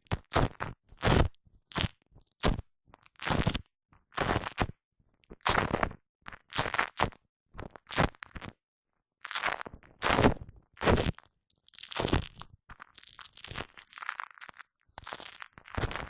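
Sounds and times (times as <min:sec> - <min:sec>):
shaving foam squishing: 0:11.8 - 0:16.0.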